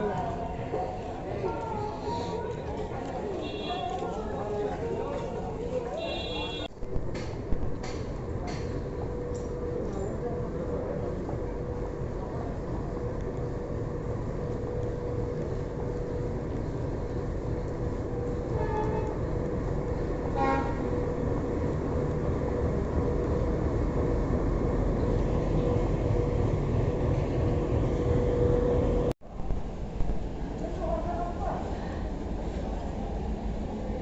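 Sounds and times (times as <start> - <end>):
train rumbling on rails: 0.0 - 34.0
train horn toots: 6.0 - 6.7, 18.5 - 19.2, 20.3 - 21.0.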